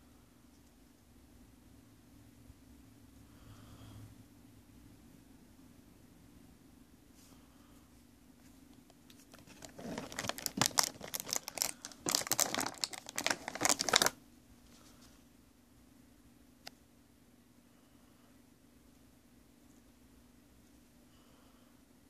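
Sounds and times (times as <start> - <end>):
packaging crinkling: 9.1 - 14.2.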